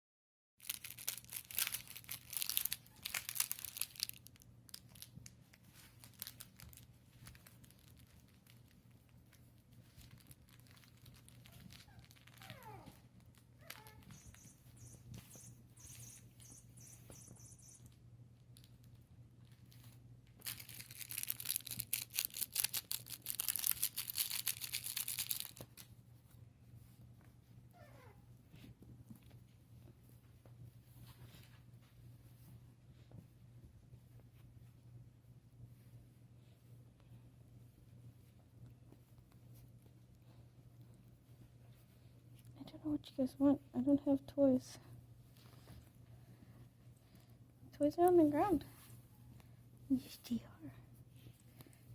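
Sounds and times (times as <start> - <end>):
puppy whimpering: 11.5 - 17.8, 27.7 - 28.3.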